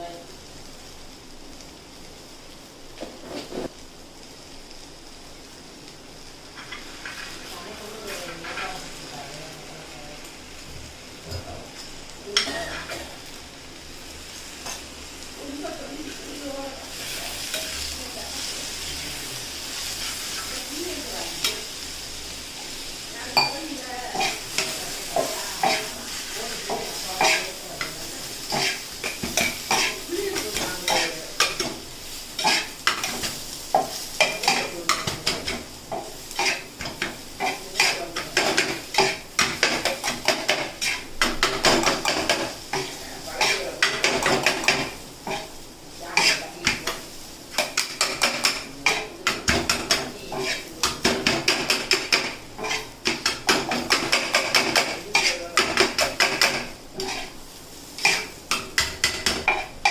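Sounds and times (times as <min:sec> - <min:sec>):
griddle sizzling: 0:00.0 - 0:59.9
metal spatulas clanking on griddle: 0:23.4 - 0:26.0, 0:26.6 - 0:31.8, 0:32.4 - 0:45.5, 0:46.2 - 0:57.3, 0:58.0 - 0:59.9.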